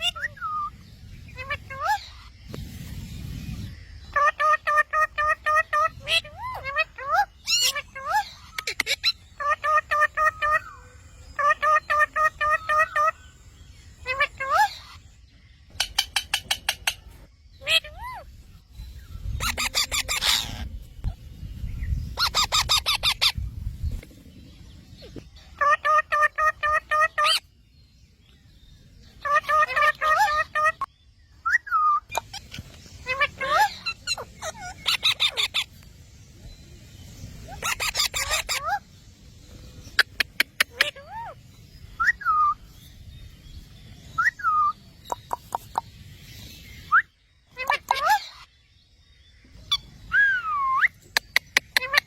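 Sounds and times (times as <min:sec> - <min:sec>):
parrot harsh calls: 0:04.1 - 0:13.2, 0:17.6 - 0:18.3, 0:19.4 - 0:20.7, 0:22.2 - 0:23.4, 0:29.2 - 0:30.9, 0:31.6 - 0:35.7, 0:37.5 - 0:38.8, 0:47.5 - 0:48.5.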